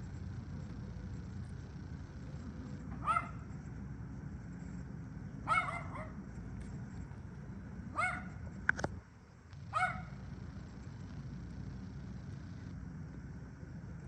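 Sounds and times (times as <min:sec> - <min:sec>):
low background noise: 0:00.0 - 0:14.0
dog barking: 0:02.9 - 0:03.4, 0:05.4 - 0:06.2, 0:07.9 - 0:08.4, 0:09.7 - 0:10.2.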